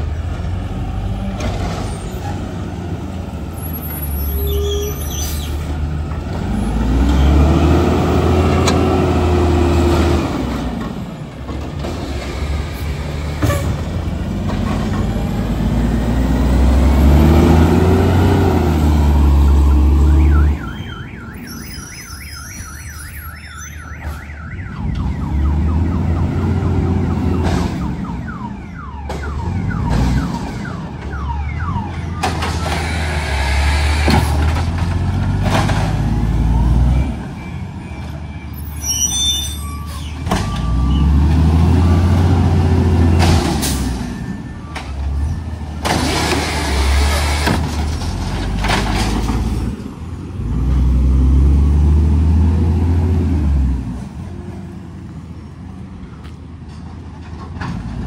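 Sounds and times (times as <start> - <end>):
truck diesel engine revving: 5.7 - 11.1, 12.0 - 20.5, 40.6 - 43.8
fast warbling alarm tone: 19.6 - 26.7.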